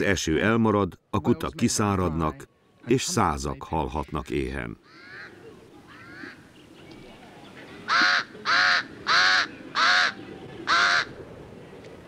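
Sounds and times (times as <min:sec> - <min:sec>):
faint outdoor background noise: 0:00.0 - 0:12.0
bird cawing: 0:04.8 - 0:06.5, 0:07.8 - 0:11.2.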